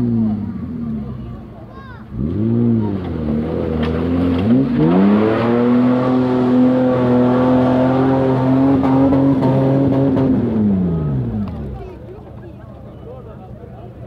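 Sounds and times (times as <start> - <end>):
off-road vehicle engine revving: 0.0 - 12.1.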